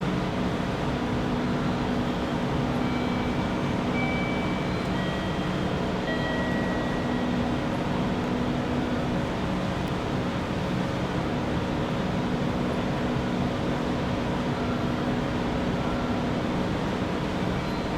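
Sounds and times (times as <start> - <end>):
high squealing of train wheels: 1.9 - 8.0, 14.5 - 17.9.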